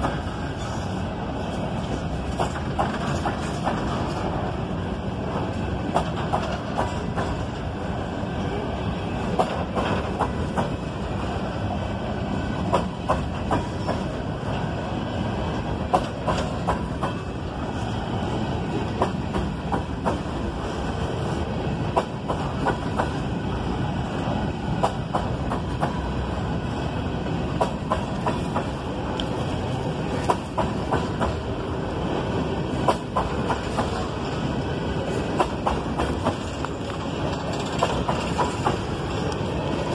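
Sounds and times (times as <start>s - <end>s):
freight train rumbling past: 0.0s - 39.9s
wheels clacking over rail joints: 1.5s - 4.5s, 5.2s - 7.8s, 9.2s - 10.9s, 12.6s - 14.6s, 15.7s - 17.9s, 30.0s - 31.6s, 32.7s - 39.9s.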